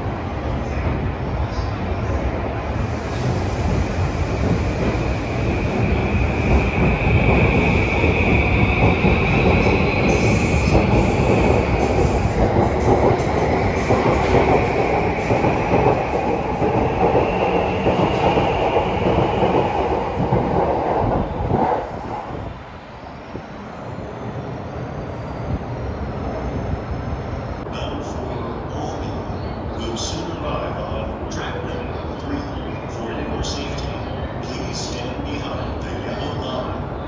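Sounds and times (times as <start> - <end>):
electric train passing: 0.0 - 37.0
train wheel clatter: 2.8 - 22.3.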